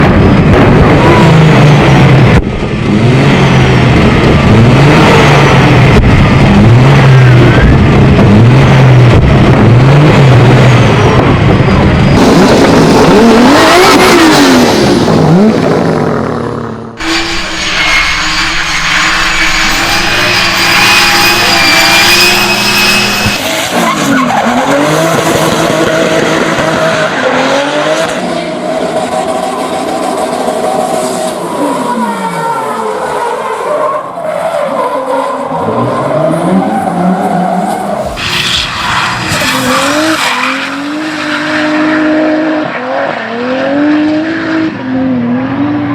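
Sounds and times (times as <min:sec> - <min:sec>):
car engine revving hard: 0:00.0 - 0:31.9, 0:35.4 - 0:45.9
tyres squealing: 0:17.0 - 0:24.6.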